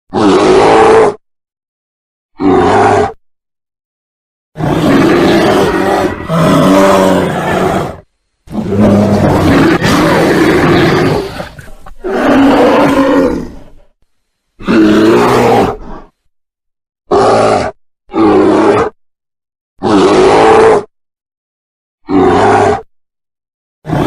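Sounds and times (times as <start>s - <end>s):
bear roaring and growling: 0.1s - 1.2s, 2.4s - 3.2s, 4.6s - 14.0s, 14.6s - 16.2s, 17.1s - 19.0s, 19.8s - 20.9s, 22.0s - 22.9s.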